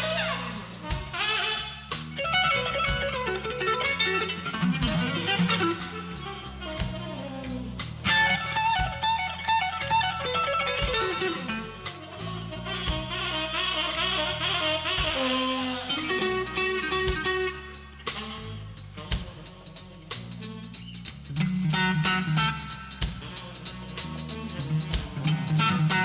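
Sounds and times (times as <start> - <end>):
bass guitar: 0.0 - 26.0
drums: 0.0 - 26.0
electric guitar lead lines: 2.2 - 7.0, 8.0 - 11.8, 25.0 - 26.0.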